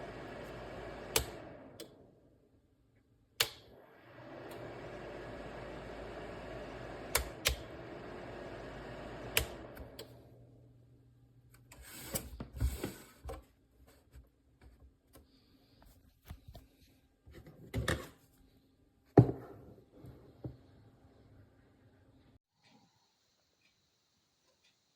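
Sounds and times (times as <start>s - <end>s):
space heater fan whirring: 0.0s - 2.6s, 3.3s - 13.2s
sharp clicks: 3.4s - 3.7s.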